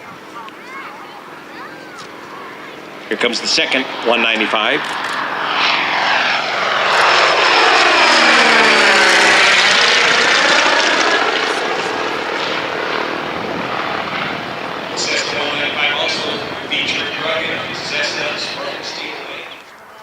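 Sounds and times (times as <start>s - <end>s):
propeller plane flyby: 0.0s - 20.0s.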